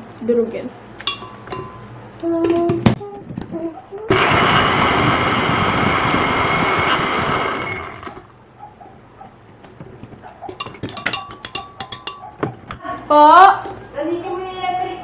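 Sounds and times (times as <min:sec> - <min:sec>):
blender grinding cookies: 0:04.1 - 0:08.3.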